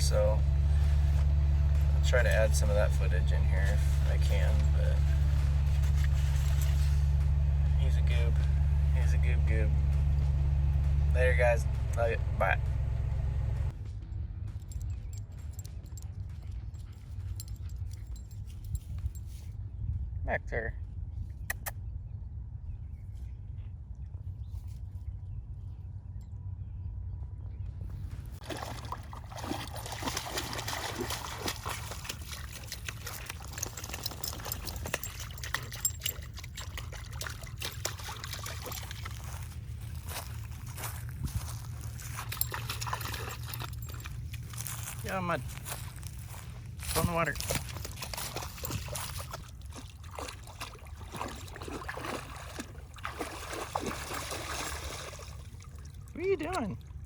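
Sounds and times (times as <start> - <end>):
steady low rumble: 0.0 - 57.0
dog splashing in water: 28.4 - 40.8, 41.6 - 44.8, 46.9 - 56.2.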